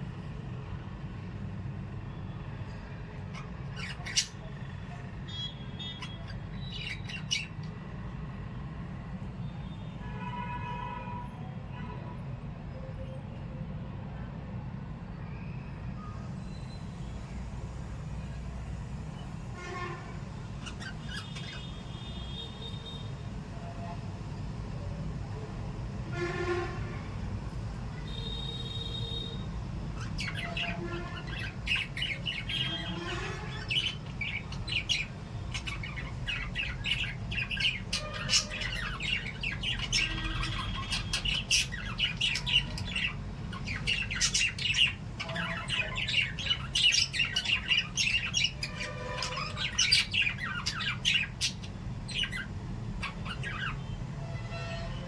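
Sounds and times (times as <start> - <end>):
parrots chirping: 2.6 - 9.3, 19.7 - 23.9, 26.1 - 54.2.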